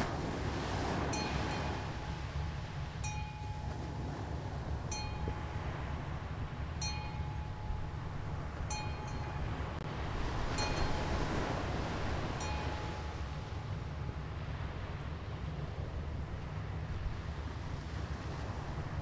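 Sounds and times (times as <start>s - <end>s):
bell-like chime ringing: 1.1s - 3.8s, 4.9s - 5.6s, 6.8s - 7.9s, 8.7s - 9.5s, 10.6s - 11.1s, 12.4s - 13.2s.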